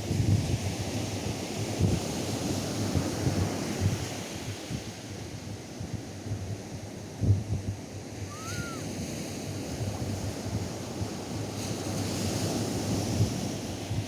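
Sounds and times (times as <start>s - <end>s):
surf washing up a beach: 0.0s - 14.0s
faint rising then falling call: 8.3s - 8.8s.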